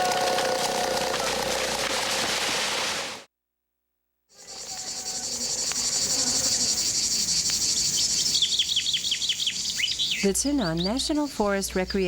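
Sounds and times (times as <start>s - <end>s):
insects buzzing: 4.3s - 11.3s
bird chirps: 4.4s - 11.4s.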